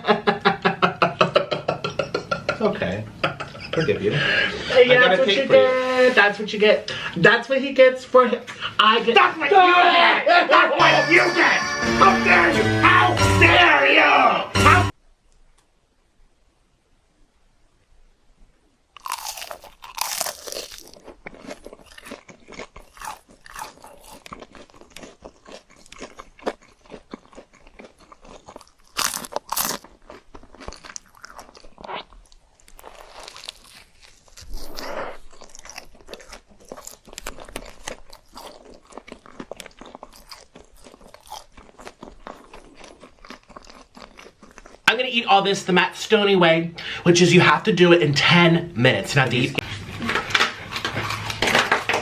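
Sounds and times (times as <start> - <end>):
person chewing crunchy food: 19.0 - 44.9, 49.6 - 52.0.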